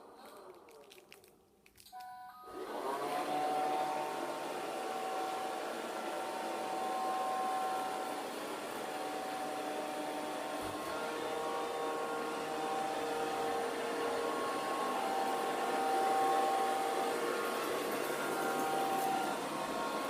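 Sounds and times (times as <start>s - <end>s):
robot vacuum beep: 2.0s - 4.0s, 14.8s - 17.1s
vacuum suction motor whining: 2.5s - 20.0s.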